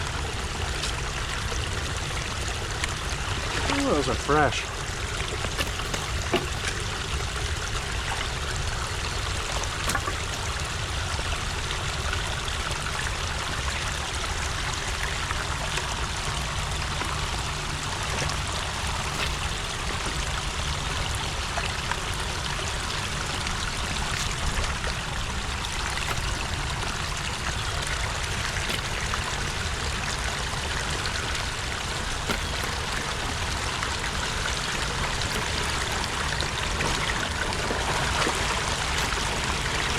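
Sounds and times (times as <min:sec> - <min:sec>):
low water rumble: 0:00.0 - 0:39.9
water rushing and trickling: 0:00.0 - 0:39.9.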